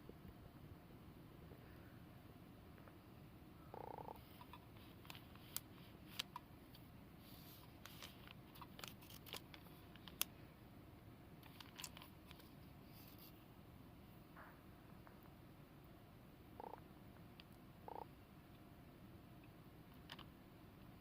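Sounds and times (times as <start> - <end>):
faint clicks and ticks: 3.8 - 6.8, 7.4 - 10.4.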